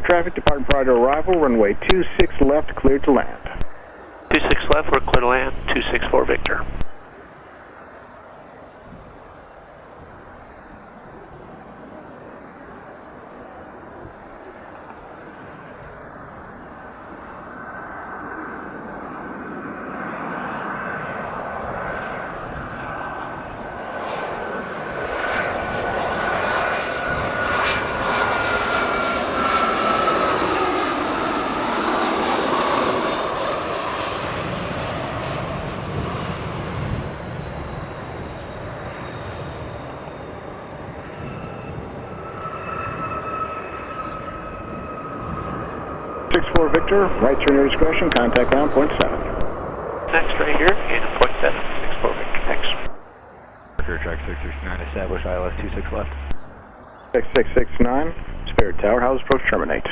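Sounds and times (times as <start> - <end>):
jet turbine whine passing: 0.0 - 8.0, 12.1 - 53.2, 53.8 - 59.9
low jet rumble: 0.0 - 8.7, 9.4 - 53.1, 53.7 - 59.9.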